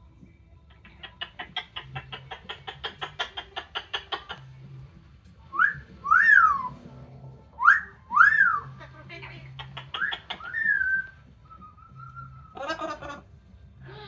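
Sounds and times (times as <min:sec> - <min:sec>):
parrot clicky chatter: 0:00.7 - 0:04.7, 0:08.2 - 0:11.2
parrot whistling: 0:05.5 - 0:06.8, 0:07.6 - 0:08.8, 0:09.5 - 0:13.2.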